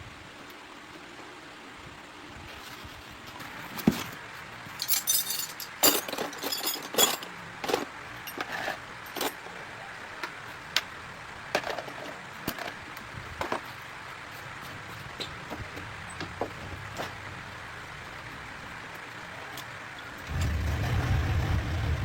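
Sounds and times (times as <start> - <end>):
metal hand tools clinking: 4.8 - 9.4.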